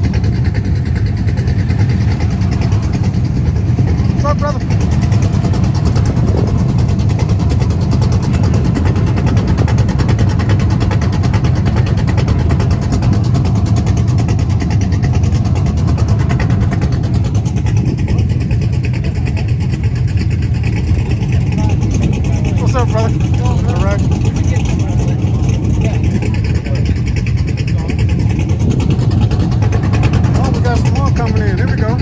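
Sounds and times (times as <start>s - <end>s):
car engine running: 0.0s - 32.0s.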